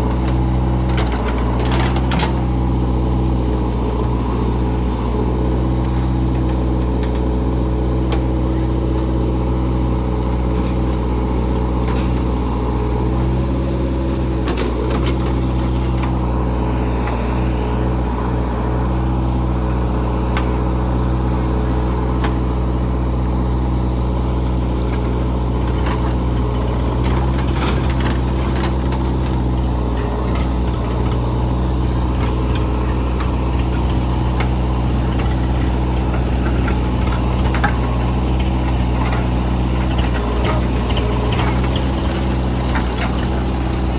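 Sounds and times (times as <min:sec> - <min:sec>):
heavy diesel engine running: 0:00.0 - 0:43.9
clanks and knocks: 0:10.5 - 0:12.6, 0:24.9 - 0:43.9.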